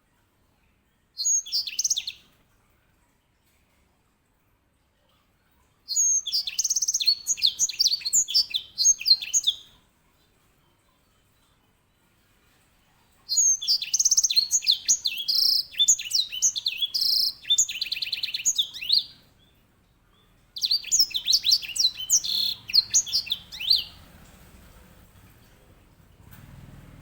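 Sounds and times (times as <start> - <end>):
finch singing trills: 1.2 - 2.2, 5.9 - 9.8, 13.3 - 19.2, 20.6 - 24.5.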